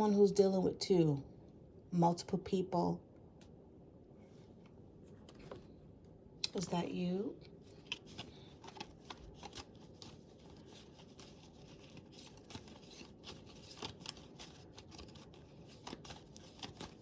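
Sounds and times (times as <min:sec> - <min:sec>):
cards being shuffled: 0:07.7 - 0:17.0.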